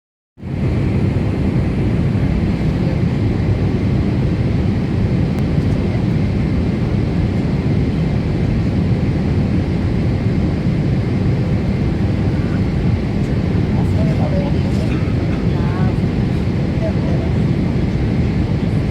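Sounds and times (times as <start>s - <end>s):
airliner engines and airflow rumble: 0.4s - 18.9s.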